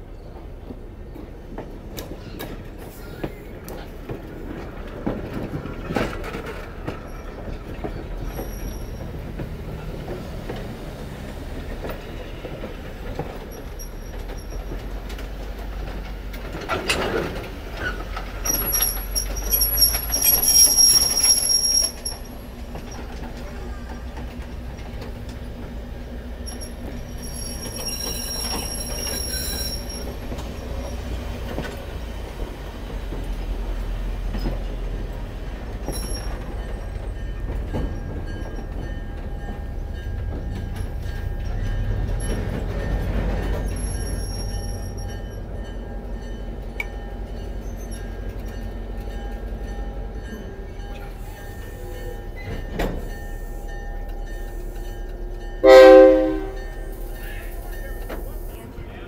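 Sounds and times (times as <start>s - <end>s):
train wheels rumbling: 0.0s - 59.0s
high-pitched wheel squeal: 17.8s - 22.3s.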